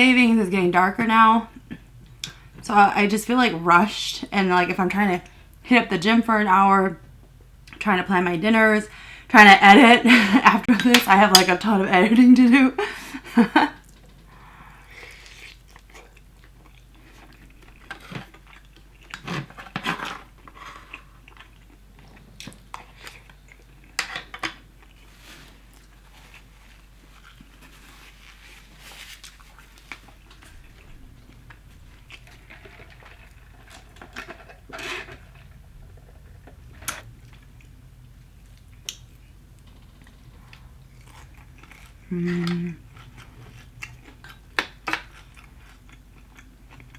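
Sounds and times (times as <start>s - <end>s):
person chewing: 14.7s - 46.9s.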